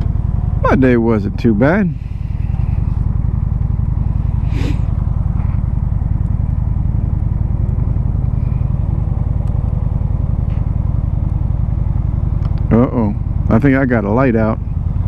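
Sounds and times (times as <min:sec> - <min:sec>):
motorcycle engine rumble: 0:00.0 - 0:15.0
short rush of noise: 0:04.3 - 0:05.0.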